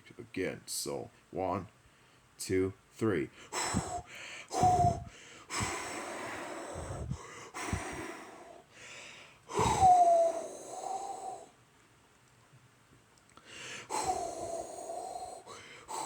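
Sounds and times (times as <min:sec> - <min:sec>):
person blowing through mouth: 0:03.6 - 0:08.4, 0:09.5 - 0:11.5, 0:13.9 - 0:16.0.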